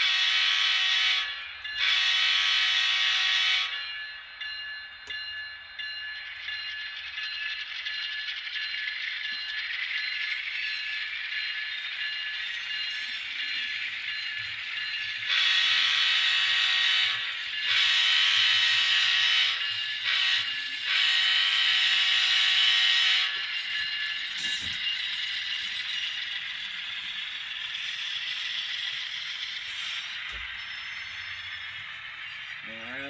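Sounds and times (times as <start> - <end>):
train horn: 0.0 - 3.8, 15.3 - 23.5
model train diesel running sound: 0.0 - 33.0.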